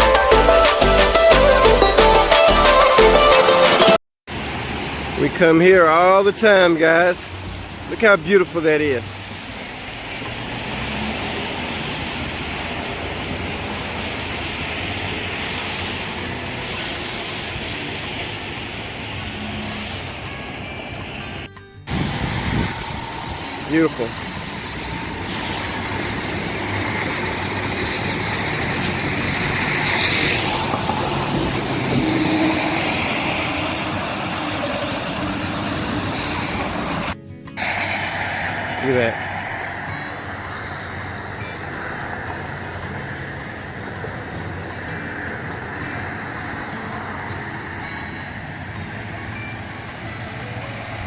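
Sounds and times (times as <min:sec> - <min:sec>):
tyres hissing on wet road: 0:02.7 - 0:51.0
vehicle driving rumble: 0:08.9 - 0:51.0.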